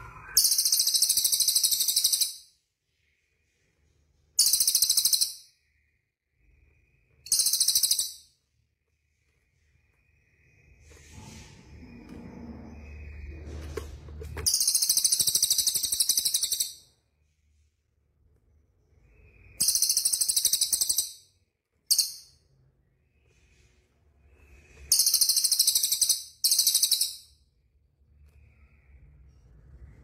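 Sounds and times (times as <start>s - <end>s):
songbird high-pitched trills: 7.3s - 8.3s.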